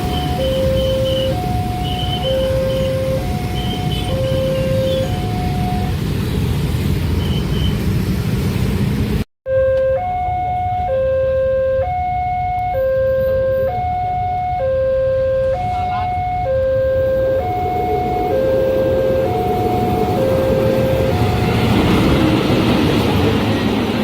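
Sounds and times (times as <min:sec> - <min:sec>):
level crossing two-tone alarm: 0:00.0 - 0:06.0, 0:09.5 - 0:22.0.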